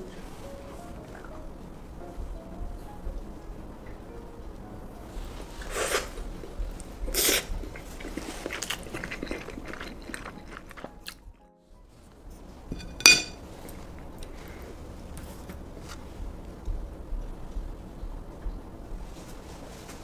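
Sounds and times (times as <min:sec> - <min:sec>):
person chewing and crunching: 0:05.6 - 0:11.2
sharp metallic clink: 0:12.8 - 0:13.4.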